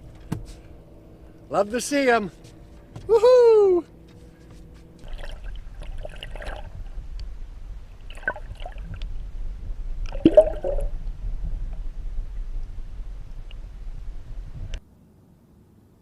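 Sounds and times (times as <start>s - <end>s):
low steady rumble: 0.0s - 16.0s
water splashing and gurgling: 5.0s - 7.0s, 7.9s - 9.1s, 10.0s - 11.0s.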